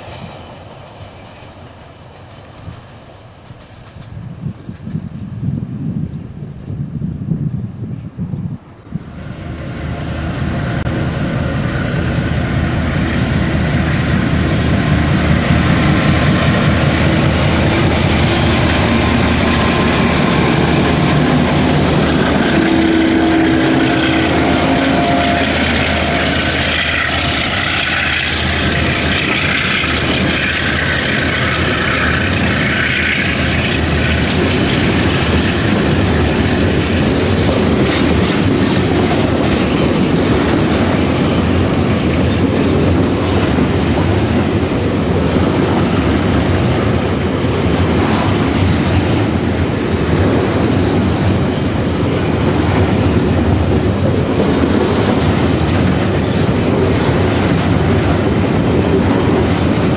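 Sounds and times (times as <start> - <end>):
locomotive engines running: 9.1 - 59.9
wagon wheels on rails: 14.6 - 59.9.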